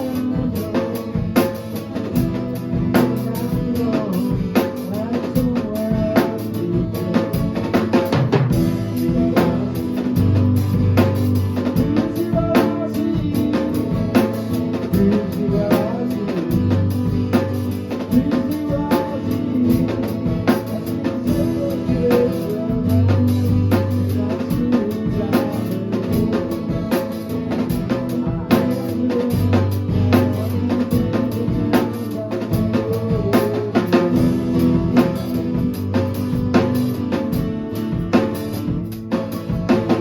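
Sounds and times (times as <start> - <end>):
drum kit beat: 0.0 - 40.0
guitar: 0.0 - 40.0
bass notes: 34.0 - 40.0.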